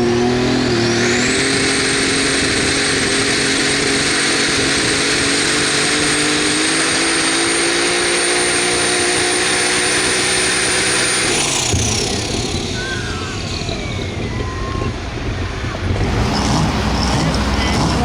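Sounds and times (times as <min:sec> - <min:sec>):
engine running at high rpm: 0:00.0 - 0:18.0
loud rushing noise: 0:08.0 - 0:18.0.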